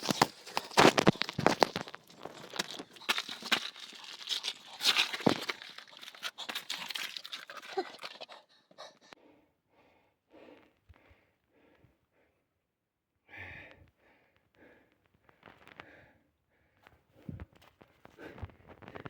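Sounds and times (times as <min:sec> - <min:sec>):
clothing rustling and scraping: 0:00.0 - 0:07.8
person panting: 0:00.0 - 0:10.6.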